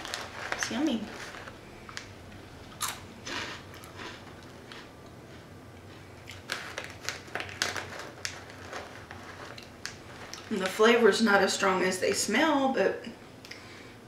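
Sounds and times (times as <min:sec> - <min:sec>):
crunching and chewing chips: 0:00.0 - 0:10.8.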